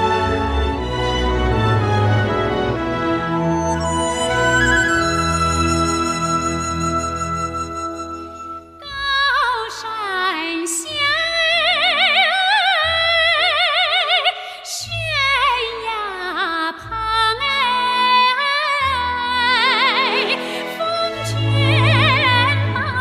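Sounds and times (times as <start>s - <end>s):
woman singing with vibrato: 8.8s - 23.0s.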